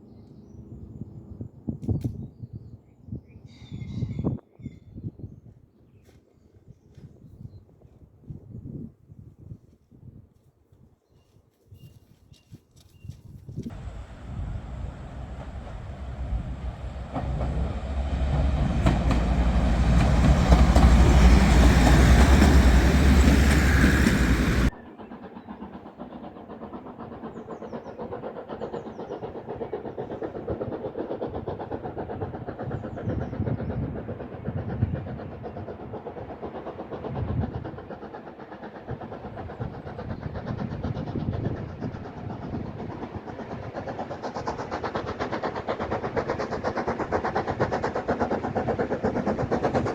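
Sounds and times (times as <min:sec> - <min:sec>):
train rumbling: 0:13.7 - 0:49.9.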